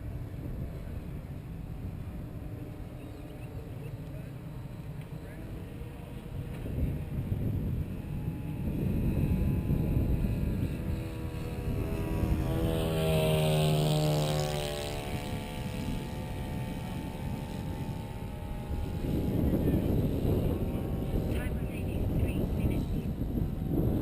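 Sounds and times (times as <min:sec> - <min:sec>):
model plane propellers whining: 0:00.0 - 0:24.0
wind buffeting microphone: 0:04.9 - 0:24.0.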